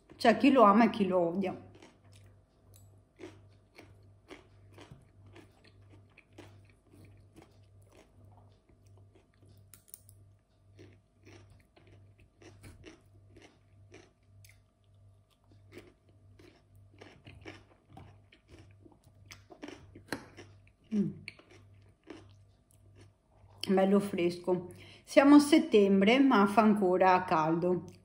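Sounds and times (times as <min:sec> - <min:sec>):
chewing crisp cucumber: 0:01.5 - 0:23.7.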